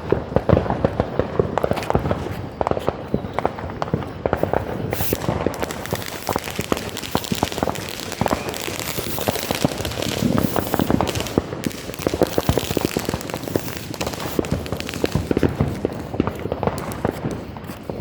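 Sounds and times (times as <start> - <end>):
fireworks crackling: 3.9 - 18.0.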